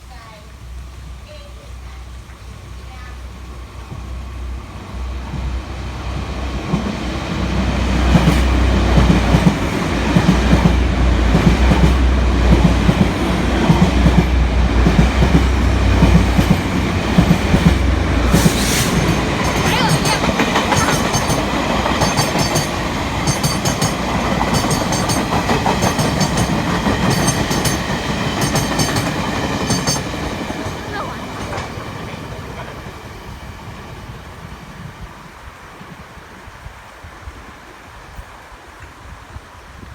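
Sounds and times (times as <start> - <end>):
train engine rumble: 0.0 - 39.6
wheels clacking over rail joints: 4.9 - 33.2.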